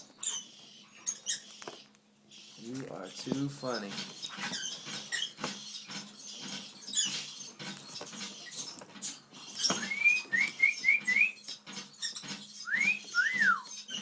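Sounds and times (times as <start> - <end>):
bird whistling rising notes: 9.8 - 11.5, 12.6 - 13.9.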